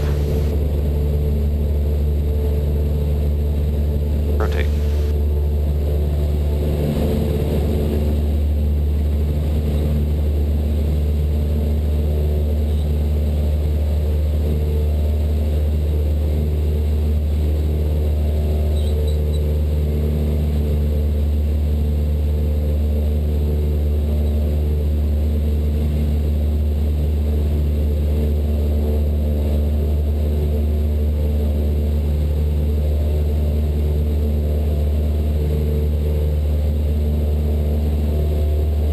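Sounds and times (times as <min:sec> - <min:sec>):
propeller plane engine drone: 0:00.0 - 0:38.9.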